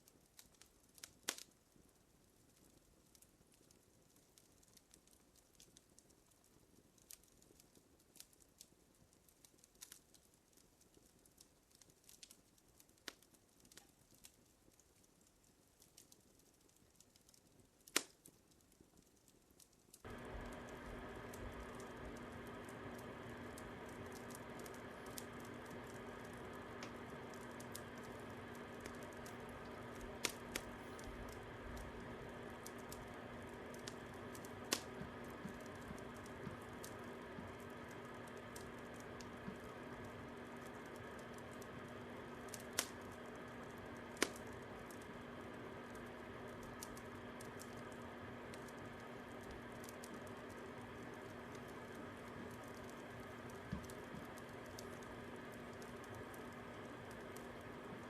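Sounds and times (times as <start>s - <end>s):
sharp pops of fire: 0.0s - 1.6s, 15.2s - 58.0s
fire crackling: 0.0s - 58.0s.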